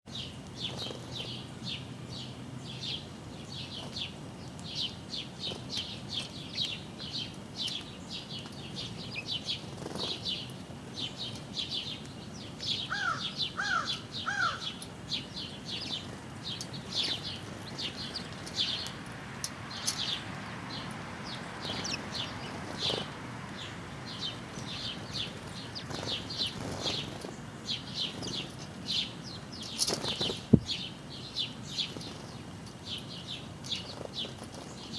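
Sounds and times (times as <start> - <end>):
small birds chirping: 0.1 - 34.9
lower arched bird calls: 12.7 - 16.0.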